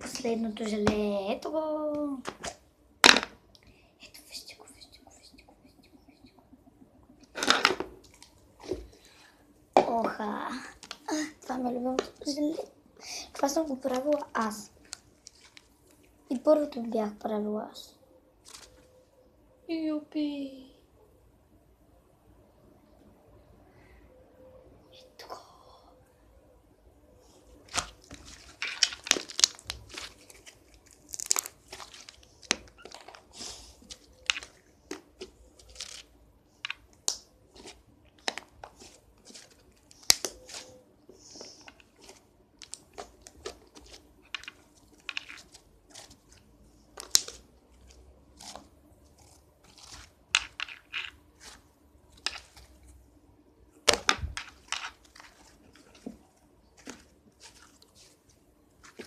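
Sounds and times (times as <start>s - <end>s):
slime crackling and popping: 27.7s - 36.1s, 38.2s - 40.7s, 47.0s - 47.8s.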